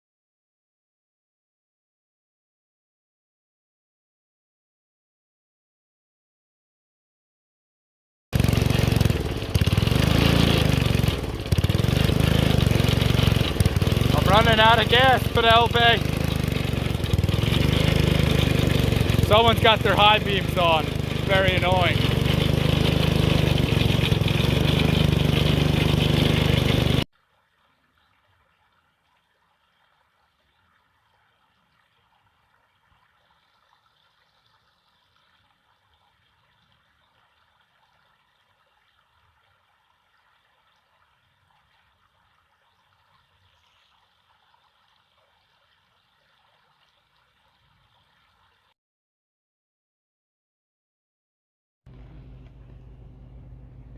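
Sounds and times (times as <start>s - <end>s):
go-kart engine running: 8.4s - 27.0s, 51.9s - 53.9s.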